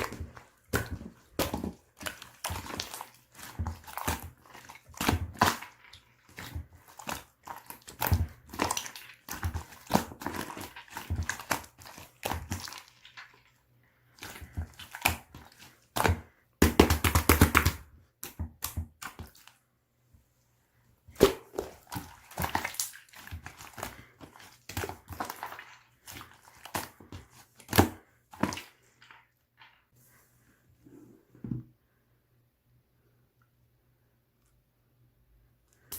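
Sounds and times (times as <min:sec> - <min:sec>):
slime squishing and popping: 0:00.0 - 0:13.2.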